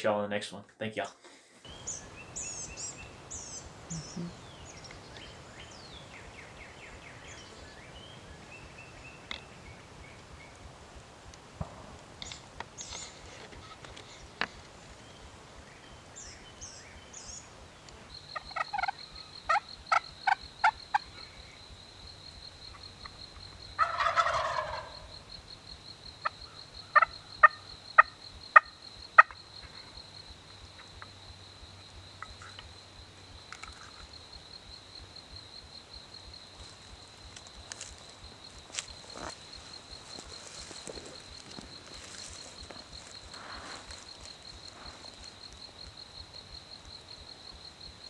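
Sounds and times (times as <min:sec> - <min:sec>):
short sharp bird calls: 0:01.8 - 0:05.0
turkey gobbling: 0:18.4 - 0:20.8, 0:23.8 - 0:25.1, 0:26.9 - 0:29.4.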